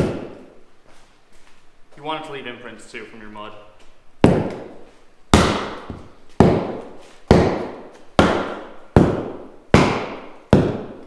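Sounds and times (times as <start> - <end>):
dead blow hammer striking tire: 0.0 - 0.5, 4.2 - 11.0.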